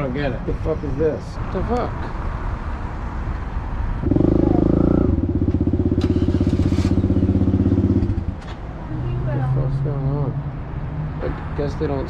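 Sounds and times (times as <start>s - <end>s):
small motorcycle engine revving: 4.0s - 8.3s.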